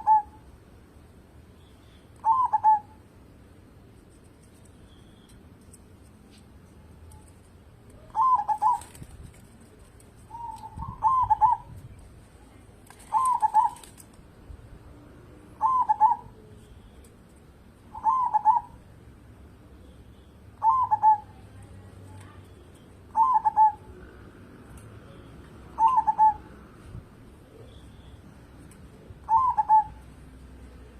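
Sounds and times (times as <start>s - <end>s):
dove cooing: 0.0s - 0.4s, 2.2s - 3.0s, 8.1s - 9.1s, 10.2s - 11.8s, 13.0s - 14.0s, 15.6s - 16.4s, 17.9s - 18.8s, 20.6s - 21.4s, 23.1s - 24.3s, 25.7s - 26.6s, 29.0s - 30.1s.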